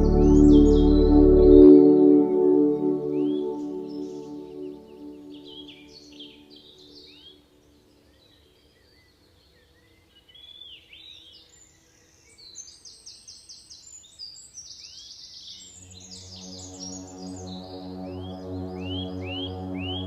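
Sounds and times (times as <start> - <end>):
soft ambient music: 0.0 - 8.0, 15.6 - 20.0.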